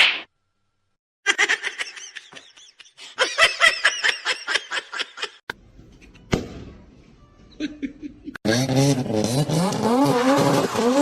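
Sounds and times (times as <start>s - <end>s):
person laughing in high bursts: 1.3s - 5.4s.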